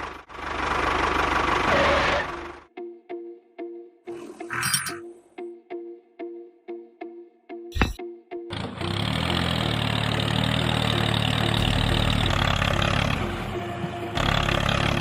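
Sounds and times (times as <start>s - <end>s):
small engine running: 0.0s - 2.7s, 8.5s - 15.0s.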